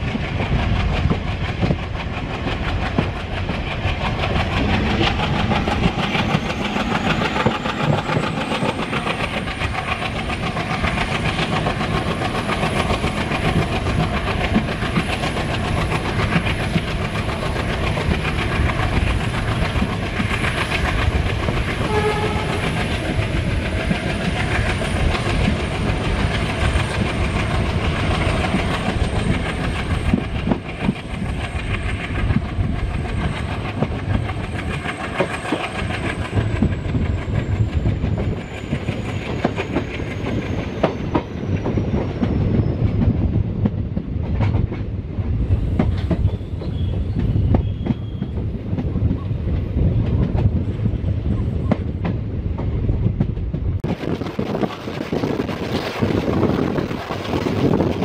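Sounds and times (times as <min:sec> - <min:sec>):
train running rush: 0:00.0 - 0:58.0.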